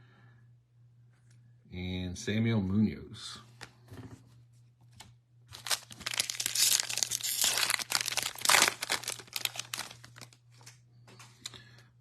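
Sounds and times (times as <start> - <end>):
foil wrapper tearing and crinkling: 5.5 - 10.7.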